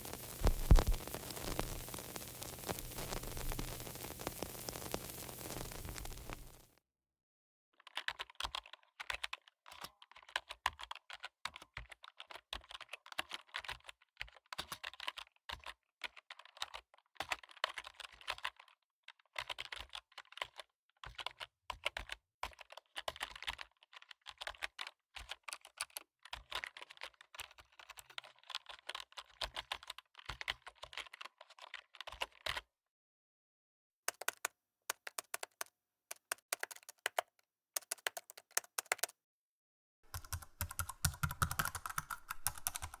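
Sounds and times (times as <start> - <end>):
fast typing on keyboard: 34.1 - 39.1, 40.1 - 43.0.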